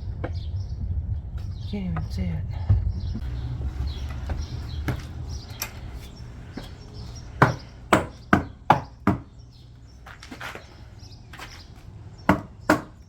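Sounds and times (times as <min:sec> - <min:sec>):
sharp knocks on wooden steps: 0:07.4 - 0:09.3, 0:12.3 - 0:13.0.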